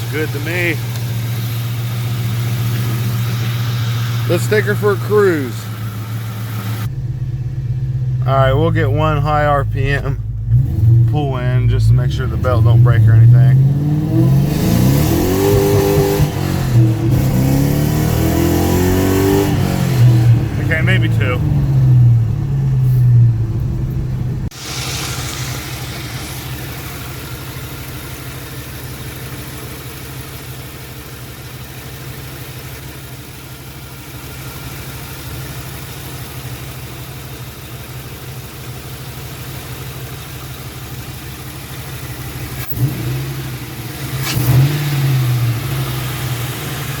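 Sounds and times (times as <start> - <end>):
engine revving: 0.0 - 29.4, 41.7 - 47.0
car engine running: 0.0 - 47.0.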